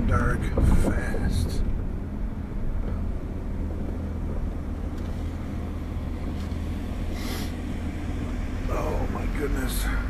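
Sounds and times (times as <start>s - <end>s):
engine and road rumble: 0.0s - 10.0s.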